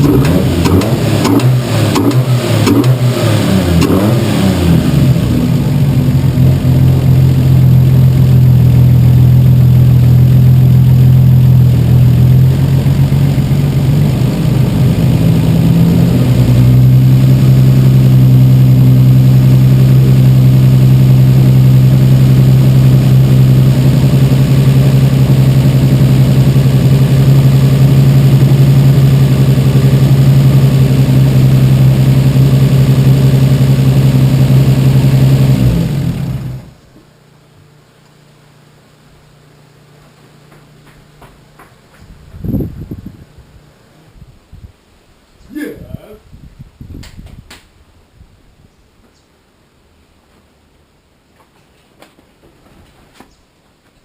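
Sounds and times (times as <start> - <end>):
turbo car engine running: 0.0 - 36.8.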